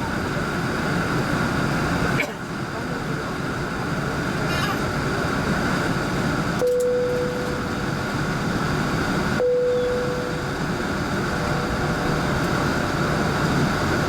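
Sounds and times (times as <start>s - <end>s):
aircraft cabin noise: 0.0s - 14.0s
single-tone cabin chime: 6.6s - 7.7s, 9.4s - 10.5s.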